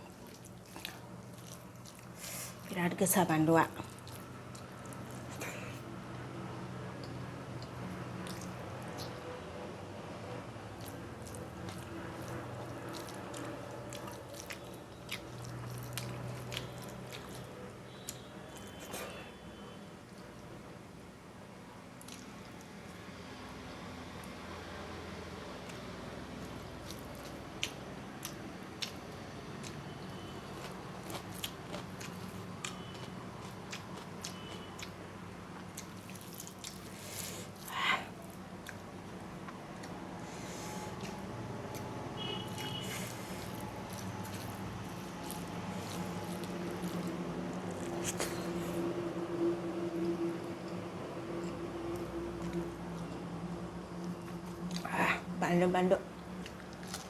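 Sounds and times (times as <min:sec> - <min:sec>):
person chewing food: 0:00.0 - 0:02.7, 0:03.8 - 0:06.2, 0:06.8 - 0:09.2, 0:10.7 - 0:19.4, 0:22.0 - 0:23.1, 0:25.3 - 0:55.0, 0:56.2 - 0:57.0
wet mouth clicks and smacks: 0:07.0 - 0:09.2.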